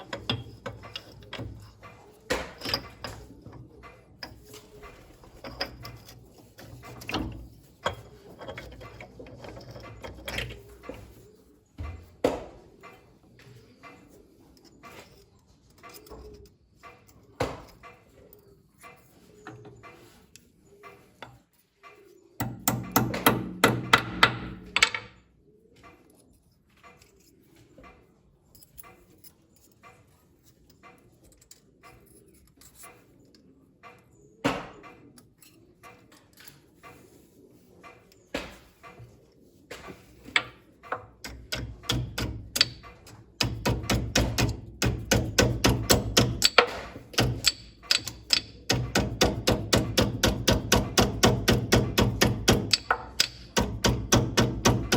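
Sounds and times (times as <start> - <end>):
hand tools clicking and knocking: 0.0 - 54.9
rapid rhythmic striking: 41.2 - 54.9.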